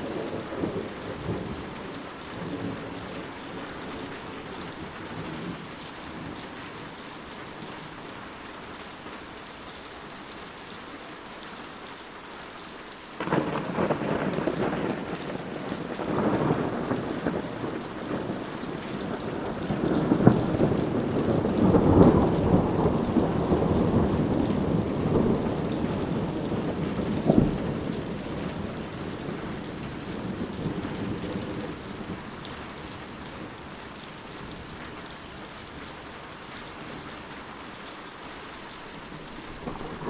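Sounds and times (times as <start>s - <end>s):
steady rain: 0.0s - 40.0s
sharp thunder claps: 13.2s - 32.3s, 39.5s - 40.0s
thunder rolling: 13.2s - 33.6s, 39.5s - 40.0s.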